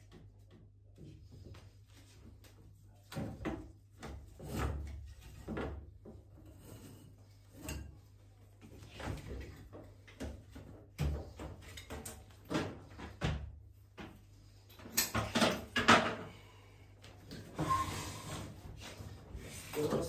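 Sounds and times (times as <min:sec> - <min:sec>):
rubbing scrape: 0:17.6 - 0:19.8.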